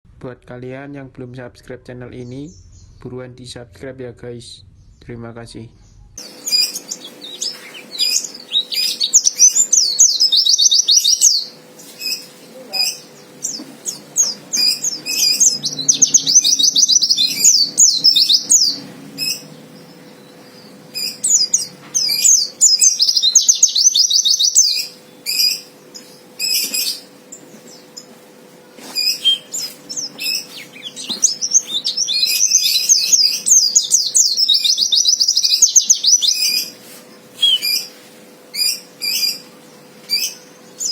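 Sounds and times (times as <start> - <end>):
bird twittering song: 2.1 - 3.1, 4.6 - 40.9
bird single chirps: 5.9 - 27.1, 29.0 - 36.8, 37.4 - 38.0.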